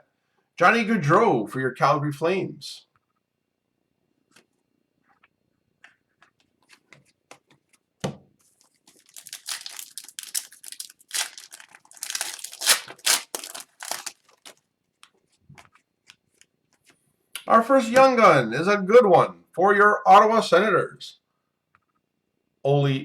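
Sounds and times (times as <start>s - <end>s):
foil wrapper tearing and crinkling: 8.7s - 14.6s.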